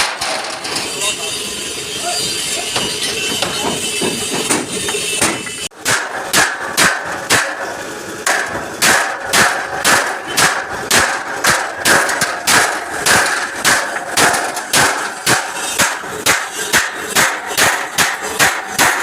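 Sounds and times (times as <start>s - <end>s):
hammer beating metal: 2.5s - 19.0s.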